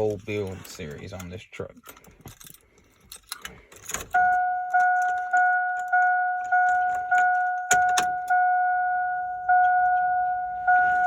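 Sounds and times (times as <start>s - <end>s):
keys jingling: 1.8s - 8.3s
car warning chime dings: 4.1s - 11.0s.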